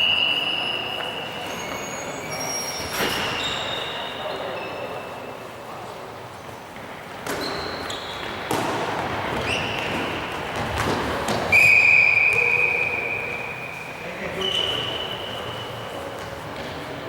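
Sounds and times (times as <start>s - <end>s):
shoes squeaking: 0.0s - 4.9s, 6.8s - 17.0s.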